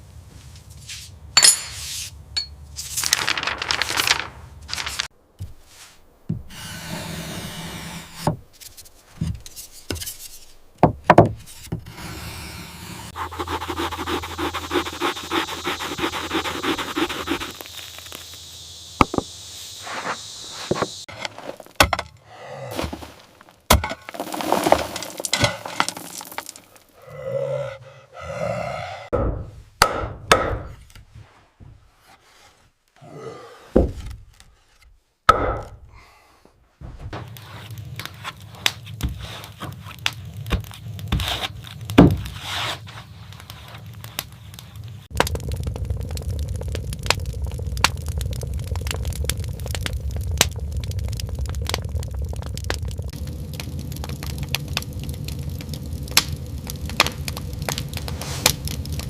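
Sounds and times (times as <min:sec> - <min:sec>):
wood scraping strokes: 0:02.8 - 0:10.6, 0:11.4 - 0:18.2, 0:19.0 - 0:22.0, 0:22.7 - 0:26.9, 0:36.8 - 0:45.5, 0:51.4 - 0:59.0.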